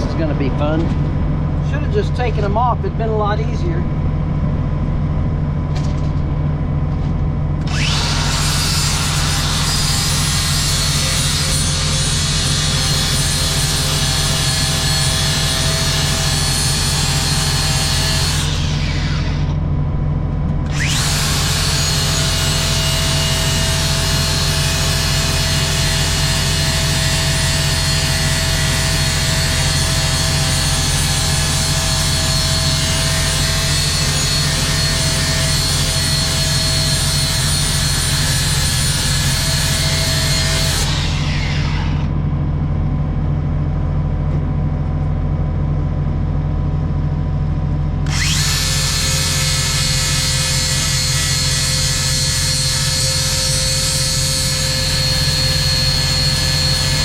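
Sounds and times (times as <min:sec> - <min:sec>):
angle grinder grinding steel: 0:07.6 - 0:19.6, 0:20.7 - 0:42.1, 0:48.1 - 0:57.0.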